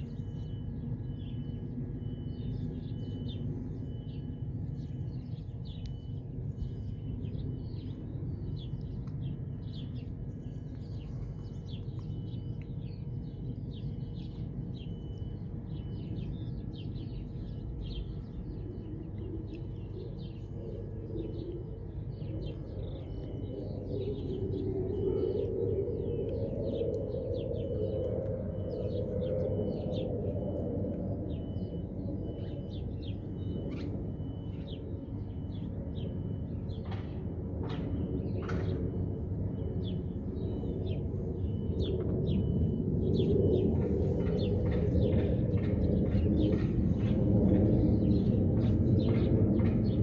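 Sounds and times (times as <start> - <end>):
small songbirds chirping: 0.0 - 50.0
steady low rumble: 0.0 - 50.0.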